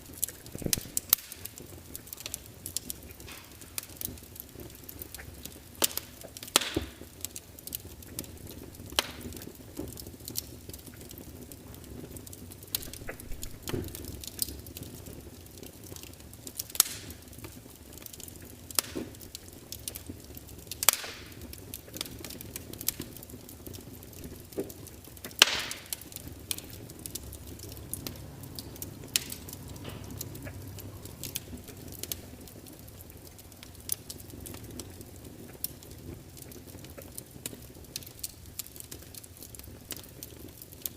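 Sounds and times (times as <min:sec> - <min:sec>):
low hiss of flames: 0:00.0 - 0:40.9
wood crackling and popping: 0:00.0 - 0:40.9.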